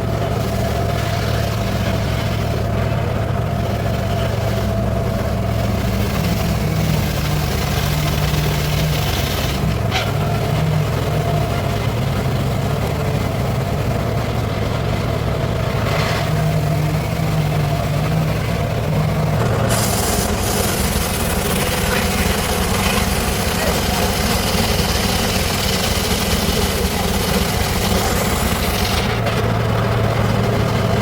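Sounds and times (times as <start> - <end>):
circular saw motor running: 16.8 - 31.0.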